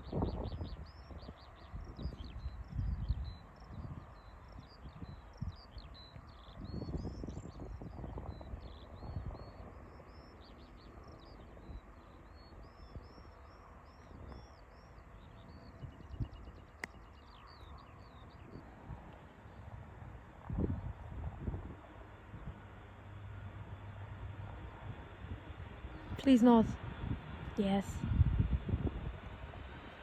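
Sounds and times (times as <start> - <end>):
wind gusts on microphone: 0.0 - 9.9, 15.4 - 22.8, 23.7 - 30.0
songbirds singing and twittering: 0.0 - 19.7.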